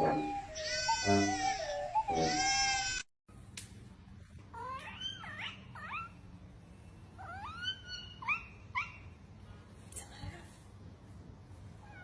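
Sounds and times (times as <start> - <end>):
cat meowing: 0.6 - 1.6, 2.2 - 3.0.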